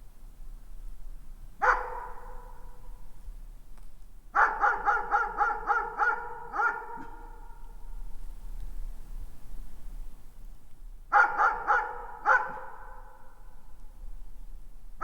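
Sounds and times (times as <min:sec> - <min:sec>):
distant dog barking echoing: 0:01.6 - 0:03.0, 0:04.4 - 0:07.7, 0:11.1 - 0:13.4.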